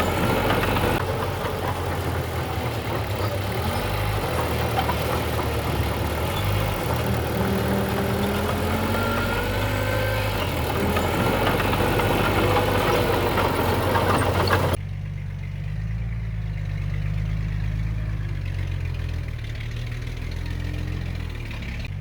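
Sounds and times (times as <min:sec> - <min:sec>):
diesel machinery running: 0:00.0 - 0:15.2.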